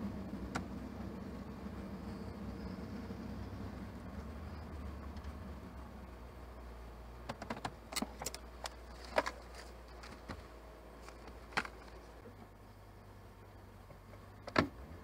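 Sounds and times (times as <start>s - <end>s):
car engine humming: 0.0s - 15.0s
sharp clicks and knocks: 7.3s - 12.0s.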